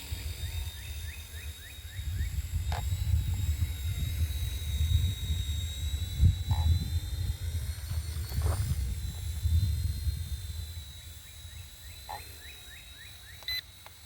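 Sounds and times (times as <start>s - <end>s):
rc helicopter rotor whine: 0.0s - 14.0s
wind buffeting microphone: 2.0s - 11.0s.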